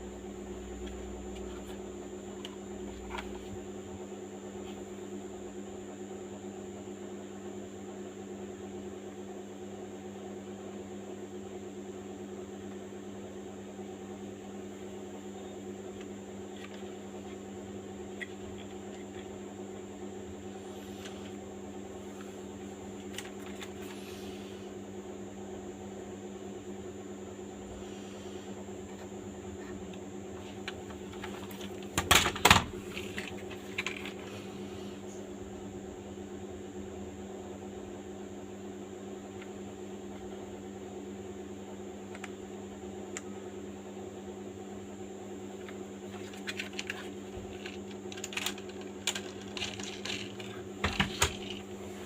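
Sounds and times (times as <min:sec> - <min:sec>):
mechanical hum: 0:00.0 - 0:52.0
faint high whine: 0:10.4 - 0:52.0.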